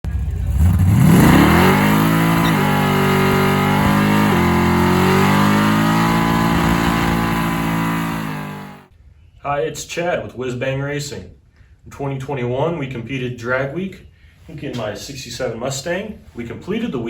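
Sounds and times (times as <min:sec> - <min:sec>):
car engine accelerating: 0:00.0 - 0:08.9.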